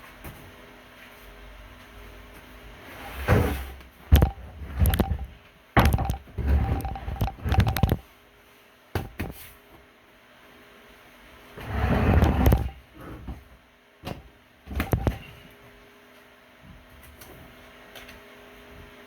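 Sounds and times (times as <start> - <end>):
knocks and clunks: 4.1 - 8.0.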